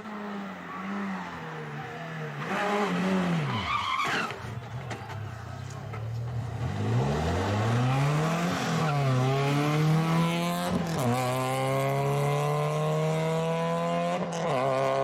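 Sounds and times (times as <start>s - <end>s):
race car engine accelerating: 6.3s - 15.0s.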